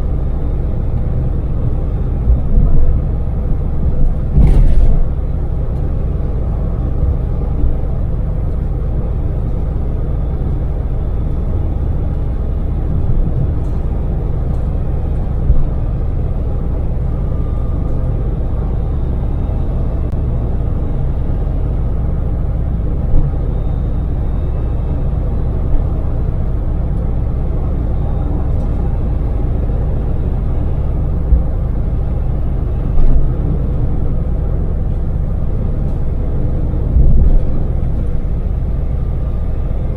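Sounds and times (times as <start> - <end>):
road noise: 0.0 - 39.9
van engine running: 0.0 - 39.9
brief thumps: 4.3 - 5.1.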